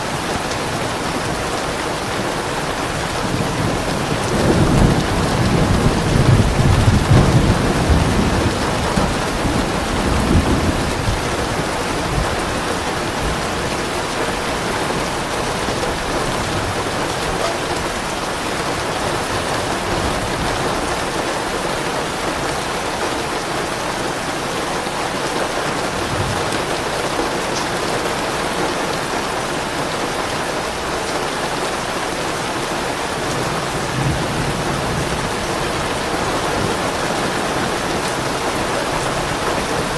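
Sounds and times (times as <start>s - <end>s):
heavy rain falling: 0.0s - 39.9s
low rumble of thunder: 2.9s - 21.2s, 33.1s - 39.9s.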